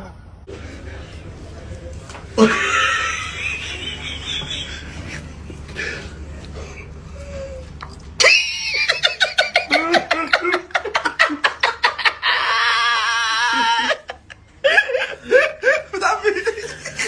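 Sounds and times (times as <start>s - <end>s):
low background hum: 0.0s - 17.0s
person laughing loudly: 2.4s - 5.3s, 8.2s - 17.0s.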